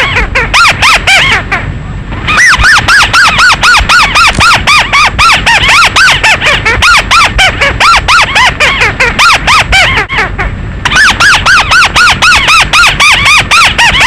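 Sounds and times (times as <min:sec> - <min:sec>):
bird call squeaky notes: 0:02.3 - 0:14.0.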